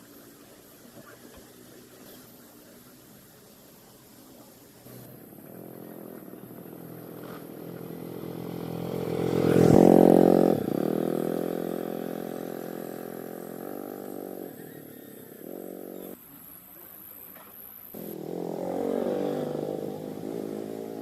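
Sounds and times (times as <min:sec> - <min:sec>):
small engine running: 0:04.8 - 0:16.2, 0:18.0 - 0:21.0.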